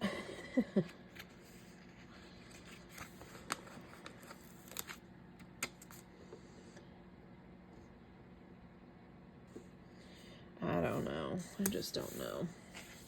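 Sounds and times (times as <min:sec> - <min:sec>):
paper rustling: 0:01.1 - 0:05.0, 0:11.7 - 0:13.0.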